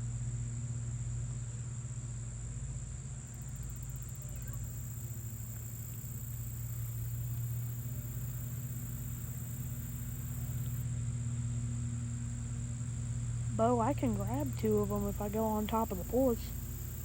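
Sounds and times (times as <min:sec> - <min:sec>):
crickets trilling: 0:03.2 - 0:10.8, 0:11.6 - 0:17.0
low hum: 0:03.4 - 0:17.0.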